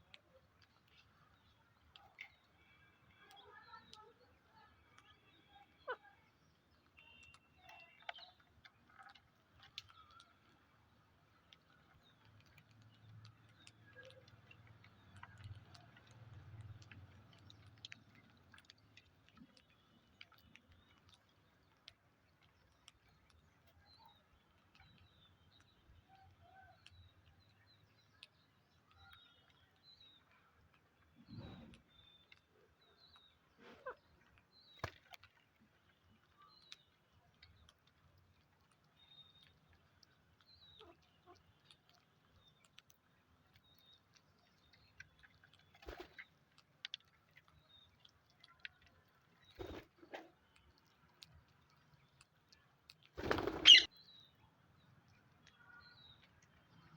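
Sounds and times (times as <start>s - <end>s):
faint bird chirps: 1.6s - 8.5s, 53.2s - 54.4s
parrots cracking food: 5.9s - 53.9s.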